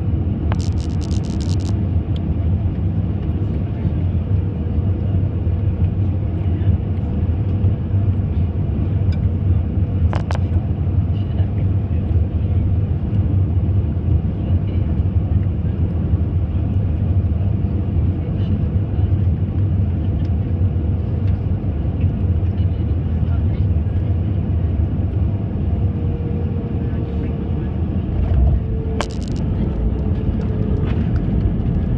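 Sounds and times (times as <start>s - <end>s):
airplane cabin engine rumble: 0.0s - 31.9s
faint constant hum: 0.0s - 31.9s
quick clicks: 0.5s - 1.7s.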